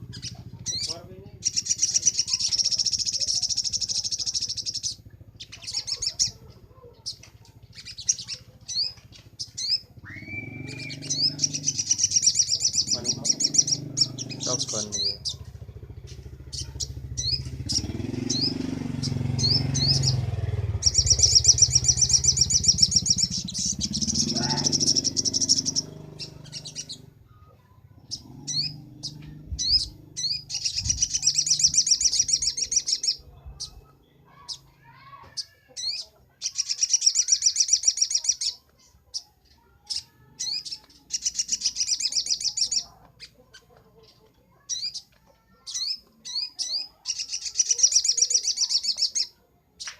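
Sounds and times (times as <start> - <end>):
bird chattering trills: 0.0 - 49.9.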